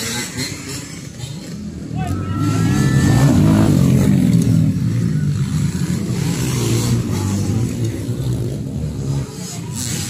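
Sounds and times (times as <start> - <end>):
dirt bike engines revving: 0.0 - 10.0.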